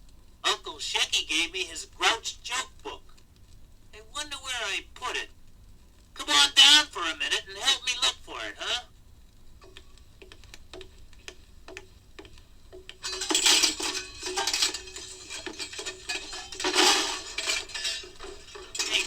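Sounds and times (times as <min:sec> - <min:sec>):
metal garbage can clattering: 0:13.0 - 0:19.0.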